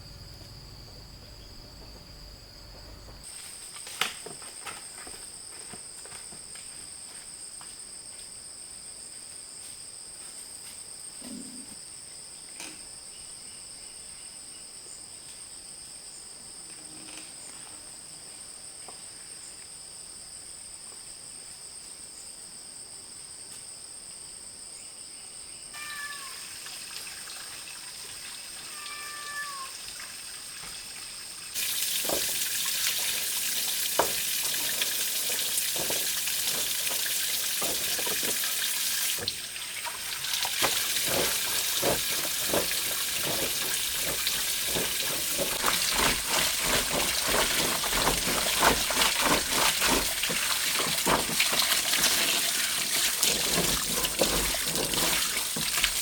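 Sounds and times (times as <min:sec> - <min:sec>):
faint insect buzz: 0:07.0 - 0:20.7
meow-like calls: 0:25.8 - 0:26.5, 0:28.6 - 0:29.9
water running and splashing: 0:25.8 - 0:56.0.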